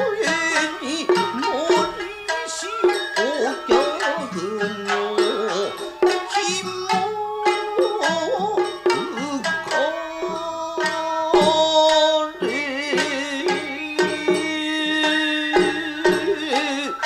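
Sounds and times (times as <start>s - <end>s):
person singing long wavering notes: 0.0s - 17.0s
shamisen plucking: 0.0s - 17.0s.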